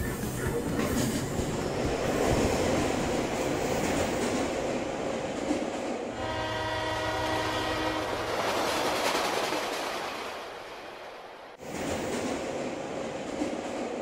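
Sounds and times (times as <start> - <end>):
train horn long note: 6.1 - 8.5.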